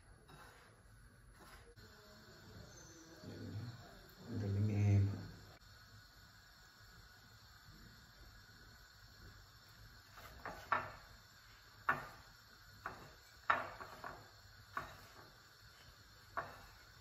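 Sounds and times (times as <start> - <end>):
knocks and scrapes in ceramic bowl: 0.2 - 1.8, 10.2 - 11.0, 12.8 - 16.9.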